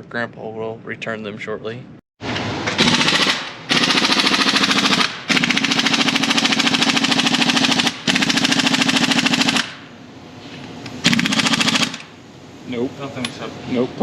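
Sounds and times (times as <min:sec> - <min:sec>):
impact wrench hammering on bolt: 0:02.7 - 0:09.8.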